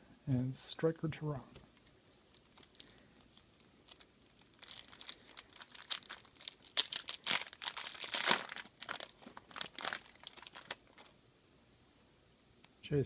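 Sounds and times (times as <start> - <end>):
wrapper crinkling and tearing: 2.3 - 11.2.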